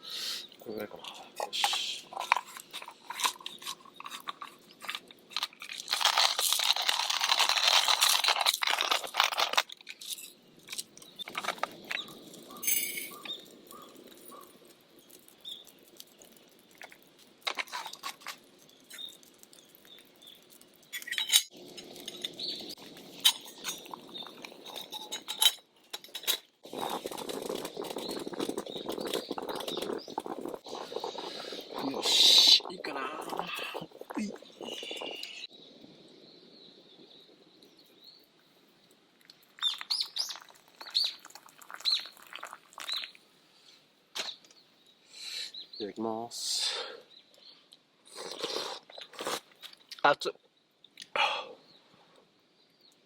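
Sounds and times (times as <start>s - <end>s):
hand coffee grinder crunching: 1.7s - 12.1s
clinks and knocks: 10.0s - 13.4s, 20.8s - 22.4s, 23.2s - 26.5s.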